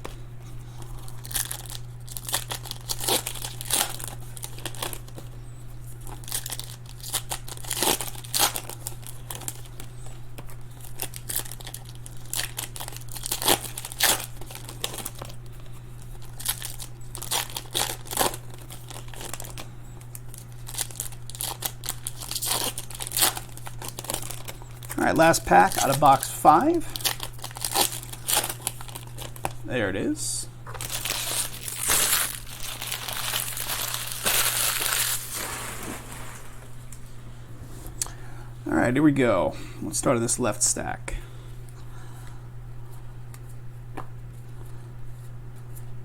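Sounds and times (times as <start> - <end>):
low electrical hum: 0.0 - 46.0
wrappers crinkling and tearing: 0.8 - 29.6, 30.7 - 36.8.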